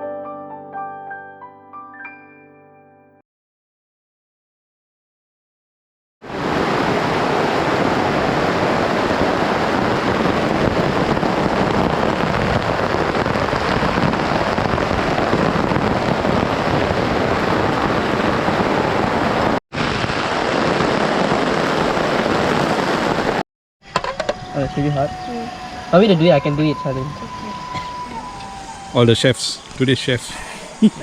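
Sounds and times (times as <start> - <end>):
heavy rain falling: 6.3 - 23.4, 24.8 - 31.0.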